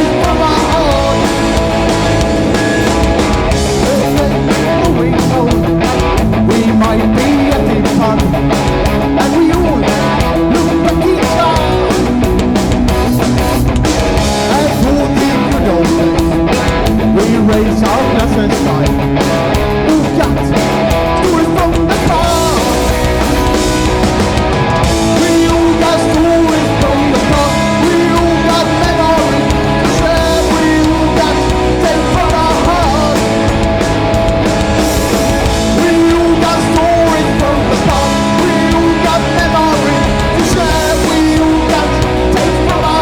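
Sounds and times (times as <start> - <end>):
person singing: 0.0 - 1.6, 3.7 - 8.4, 9.2 - 12.2, 14.4 - 16.4, 17.0 - 19.0, 19.8 - 23.1, 24.9 - 33.5, 35.6 - 43.0
bass guitar: 0.0 - 43.0
distorted electric guitars: 0.0 - 43.0
drum kit: 0.0 - 43.0.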